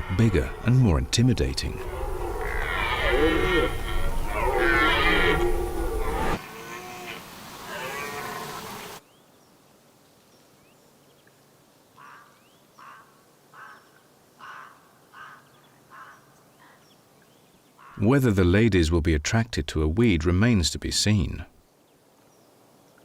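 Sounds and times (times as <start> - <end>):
deer stag bellowing: 0.0 - 8.7.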